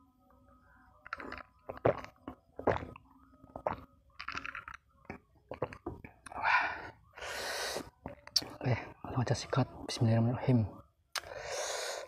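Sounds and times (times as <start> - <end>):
food crunching: 1.0 - 6.4
person breathing: 6.3 - 8.0, 11.2 - 12.0.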